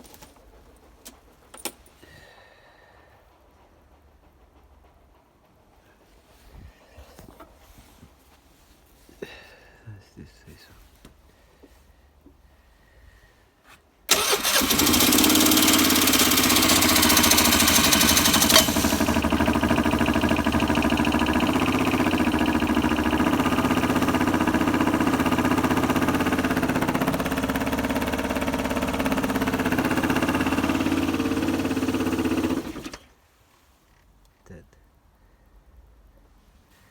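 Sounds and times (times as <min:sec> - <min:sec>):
scooter starter cranking: 0:14.1 - 0:33.1.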